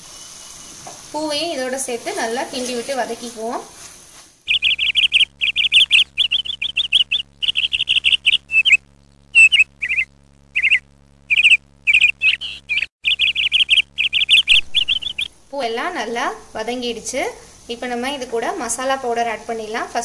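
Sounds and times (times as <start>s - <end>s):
faint steady low hum: 0.2s - 20.0s
bird chirping rapid trills: 4.5s - 15.4s.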